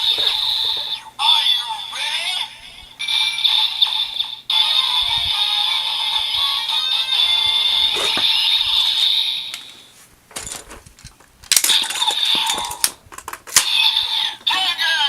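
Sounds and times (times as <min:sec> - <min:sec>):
toy electronic sound effects: 0:13.6 - 0:15.0.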